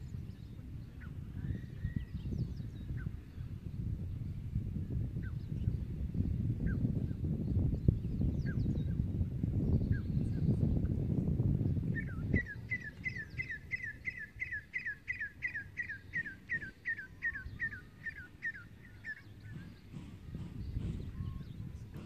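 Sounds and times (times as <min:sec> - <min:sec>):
bird singing down-slurred notes: 0:11.6 - 0:21.9.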